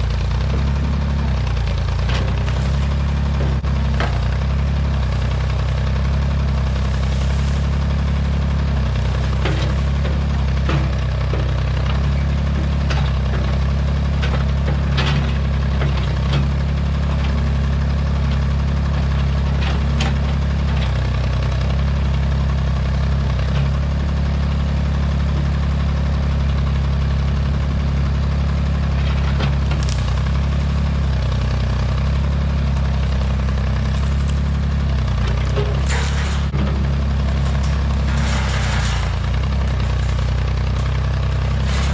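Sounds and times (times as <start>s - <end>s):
short knocks or clanks: 0.0s - 13.4s, 29.0s - 41.9s
backhoe engine running: 0.0s - 41.9s.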